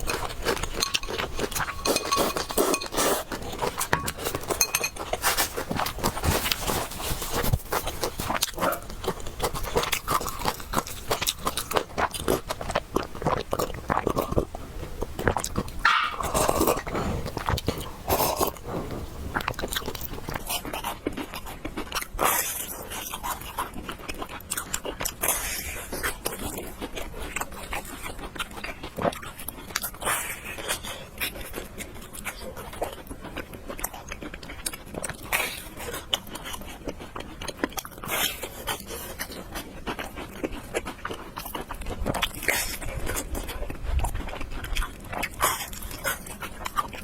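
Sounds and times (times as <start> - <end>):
wet chewing and mouth clicks: 0.0 - 47.0
loud slurps: 15.3 - 20.4.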